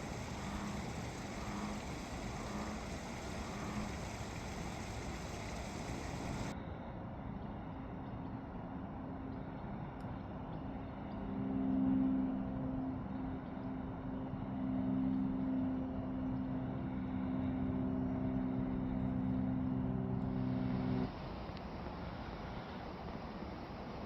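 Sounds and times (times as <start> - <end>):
distant engine droning: 0.0 - 6.5.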